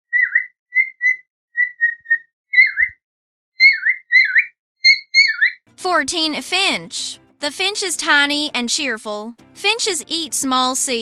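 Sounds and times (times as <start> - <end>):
cockatiel whistled chirps: 0.1 - 3.0, 3.6 - 5.6.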